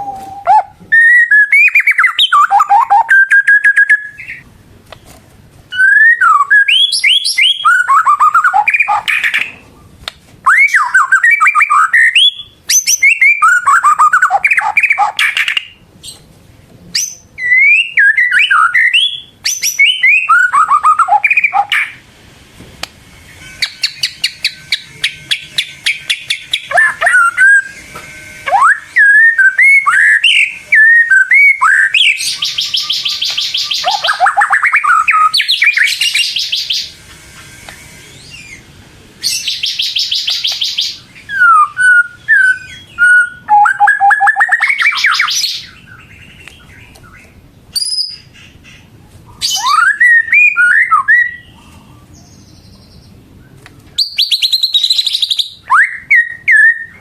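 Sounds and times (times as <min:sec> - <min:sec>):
bird singing whistled notes: 0:00.0 - 0:04.4, 0:05.7 - 0:09.5, 0:10.5 - 0:15.8, 0:16.9 - 0:22.0, 0:23.4 - 0:27.8, 0:28.5 - 0:37.0, 0:39.2 - 0:48.3, 0:49.4 - 0:51.6, 0:54.0 - 0:57.0
bird buzzing rattles: 0:23.1 - 0:28.5.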